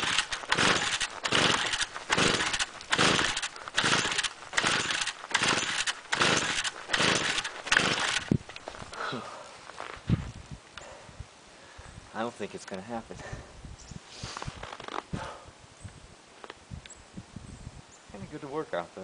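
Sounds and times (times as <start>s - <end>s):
recoil starter cord pulls: 0.0s - 9.0s.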